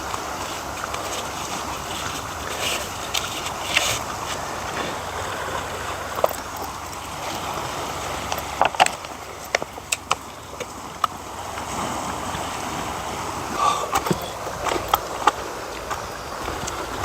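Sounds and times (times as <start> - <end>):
steady rushing noise: 12.8 - 17.0.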